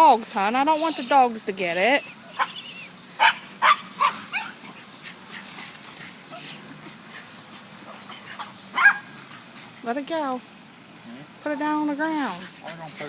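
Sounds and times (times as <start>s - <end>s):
dogs whining and yipping: 1.7s - 9.8s, 12.2s - 13.0s.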